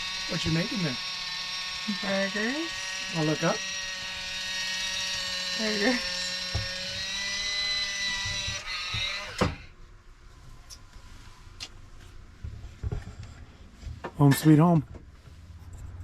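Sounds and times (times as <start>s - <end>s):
small electric motor whining: 0.0s - 9.8s.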